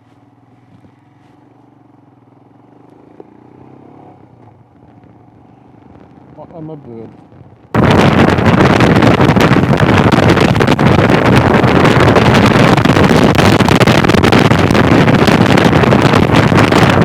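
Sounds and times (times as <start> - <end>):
wind buffeting microphone: 4.2 - 17.0.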